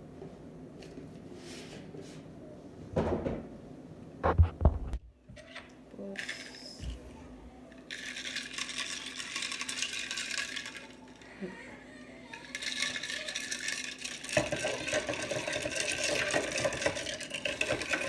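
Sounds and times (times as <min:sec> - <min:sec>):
shaker bottle rattling: 0:06.2 - 0:06.9, 0:07.9 - 0:11.2, 0:12.4 - 0:18.0.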